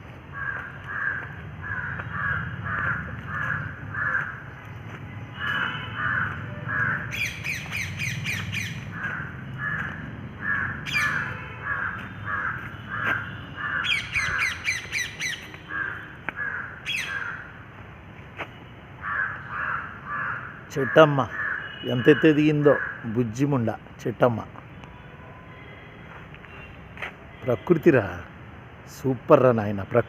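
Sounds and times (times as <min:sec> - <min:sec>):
repeated bird calls: 0:00.3 - 0:17.6, 0:18.5 - 0:23.4
shrill bird screeches: 0:06.8 - 0:08.8, 0:10.4 - 0:11.3, 0:13.6 - 0:17.4.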